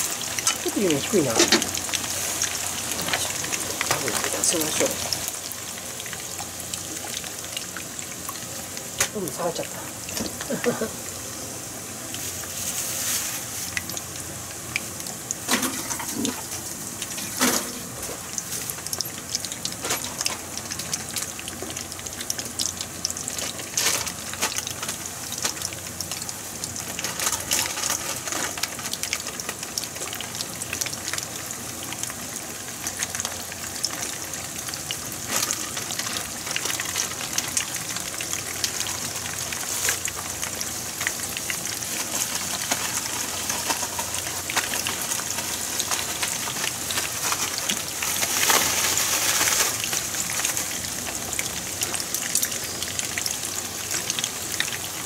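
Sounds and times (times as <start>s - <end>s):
oil sizzling with pops: 0.0s - 55.0s.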